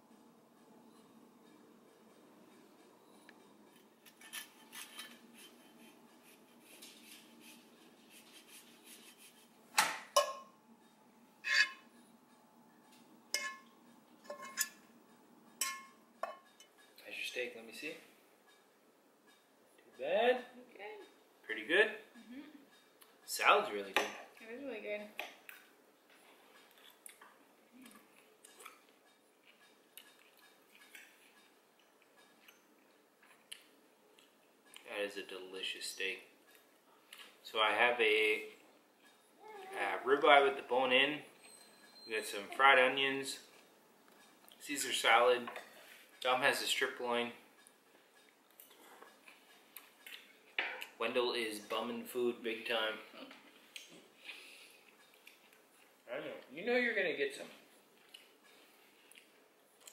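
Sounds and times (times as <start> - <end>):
cutlery clinking on plates: 3.8 - 5.7, 9.8 - 10.6, 13.3 - 14.9, 15.6 - 17.0.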